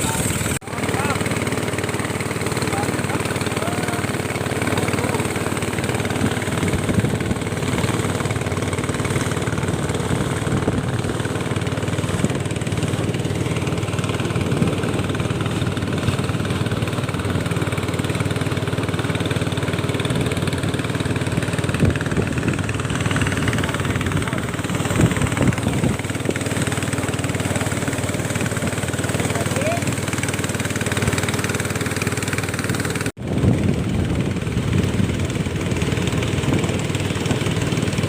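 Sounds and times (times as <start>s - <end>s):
small engine running: 0.0s - 38.0s.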